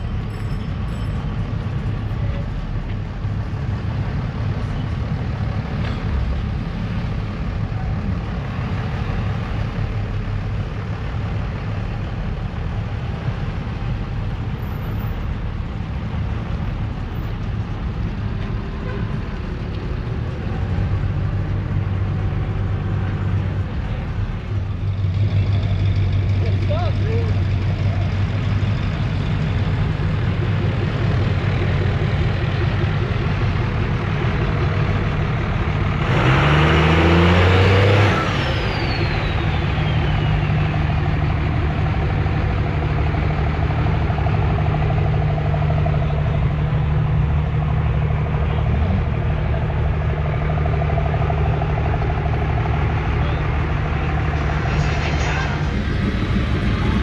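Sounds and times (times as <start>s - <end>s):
vehicle engine idling and revving: 0.0s - 57.0s
high falling whistle: 38.1s - 40.8s.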